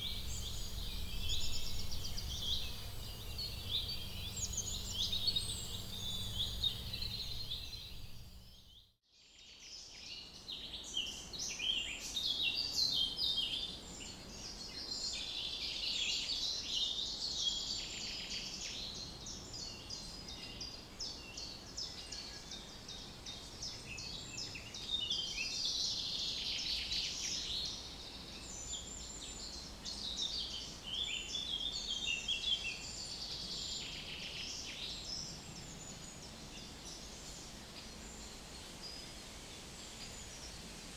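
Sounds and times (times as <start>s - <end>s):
small birds chirping and singing: 0.0s - 8.6s
low steady background noise: 0.0s - 8.7s, 9.8s - 40.9s.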